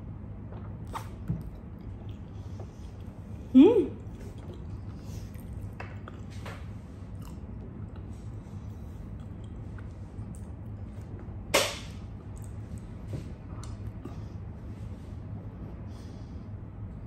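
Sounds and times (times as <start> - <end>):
low hum: 0.0 - 17.0
chewing and mouth clicks: 0.5 - 3.3, 4.0 - 11.3, 12.2 - 14.1
loud sharp snap: 11.5 - 12.0.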